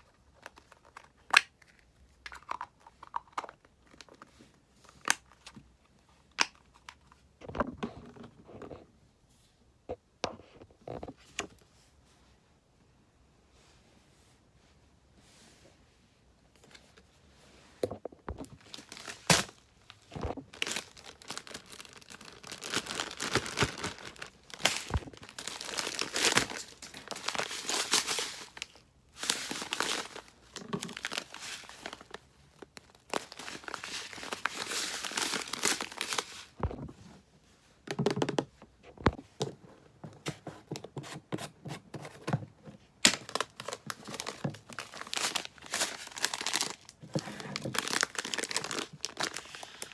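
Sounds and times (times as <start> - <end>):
packaging tearing and crinkling: 18.5 - 36.6, 43.0 - 49.9.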